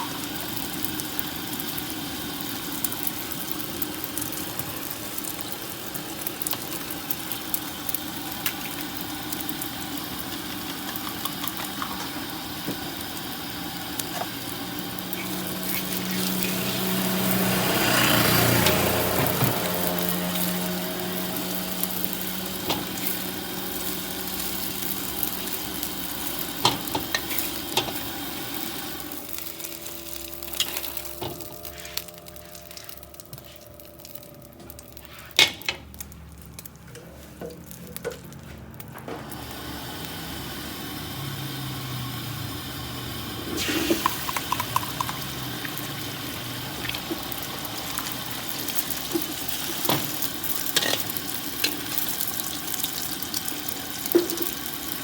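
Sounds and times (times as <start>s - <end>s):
rice sizzling in a wok: 0.0s - 38.4s, 39.1s - 55.0s
motor engine passing: 14.6s - 25.4s, 39.2s - 51.8s.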